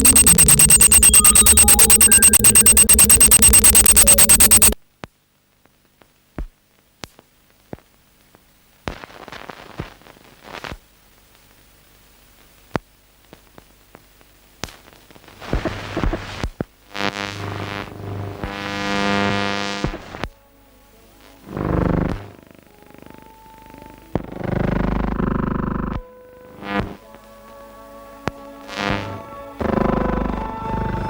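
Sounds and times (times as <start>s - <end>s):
crackling noise: 0.0s - 4.8s
fast electronic music: 0.0s - 4.8s.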